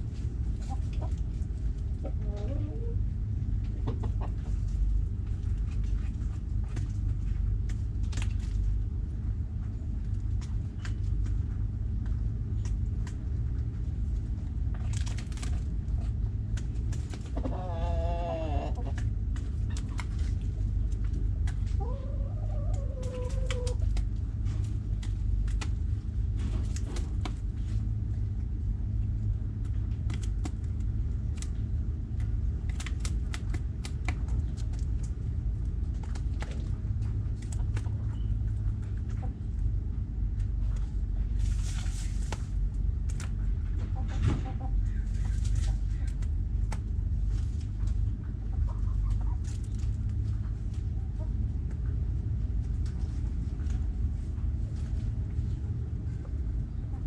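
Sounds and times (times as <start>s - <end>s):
steady low rumble: 0.0s - 57.0s
hens clucking: 2.0s - 3.0s, 3.7s - 4.8s, 17.2s - 20.2s, 21.4s - 24.1s, 48.3s - 49.5s.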